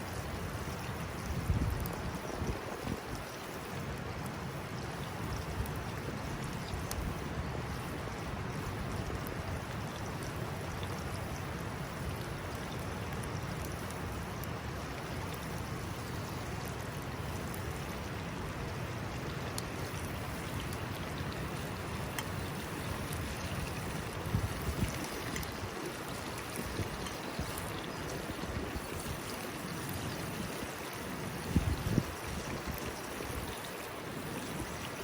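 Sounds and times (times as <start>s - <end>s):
stream flowing: 0.0s - 35.0s
faint ticks: 19.5s - 22.4s.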